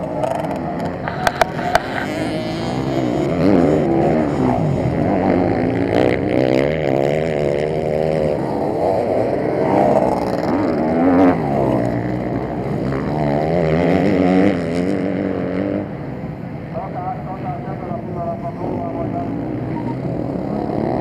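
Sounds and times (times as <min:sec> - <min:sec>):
motocross bike engines revving: 0:00.0 - 0:21.0.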